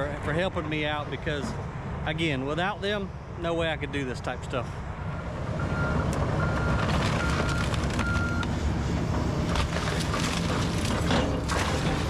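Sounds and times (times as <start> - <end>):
excavator diesel engine under load: 4.8 - 12.0
backup alarm beeps: 5.6 - 8.4
debris cracking and crashing: 6.7 - 8.4, 9.5 - 12.0.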